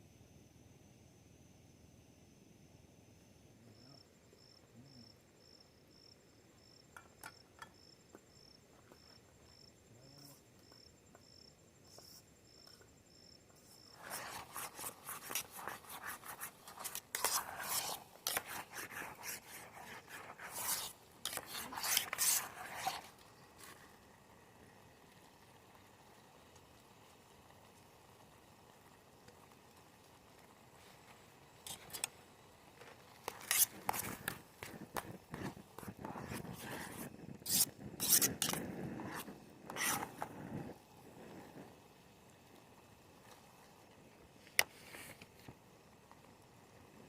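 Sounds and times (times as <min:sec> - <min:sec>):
insect chirping: 0:00.0 - 0:40.2
rapid scraping and rubbing: 0:13.6 - 0:24.0, 0:33.1 - 0:41.6.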